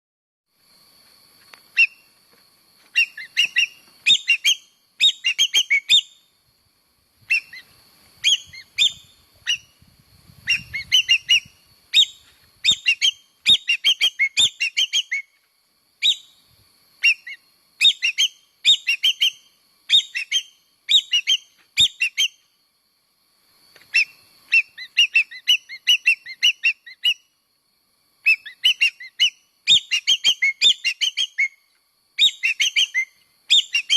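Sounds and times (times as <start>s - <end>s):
bird whistled chirps: 2.9s - 6.2s, 7.3s - 9.8s, 10.4s - 15.4s, 16.0s - 16.4s, 17.0s - 22.4s, 23.9s - 27.3s, 28.2s - 31.6s, 32.2s - 33.9s.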